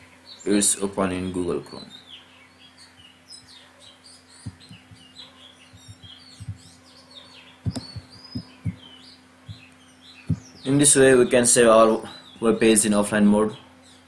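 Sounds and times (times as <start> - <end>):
small birds chirping: 0.0 - 14.0
soft low knocks: 4.4 - 6.8, 7.6 - 10.6.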